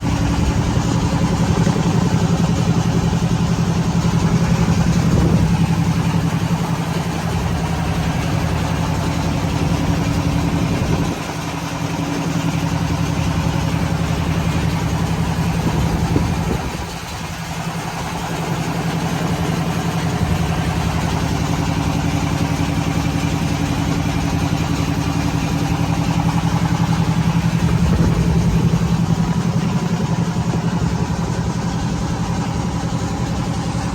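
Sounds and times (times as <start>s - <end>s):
motorboat engine running: 0.0s - 33.9s.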